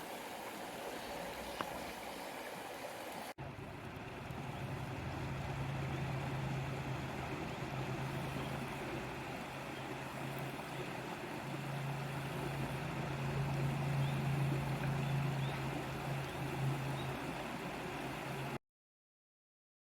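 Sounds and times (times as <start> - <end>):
river water rushing: 0.0 - 18.6
low hum: 3.4 - 18.6.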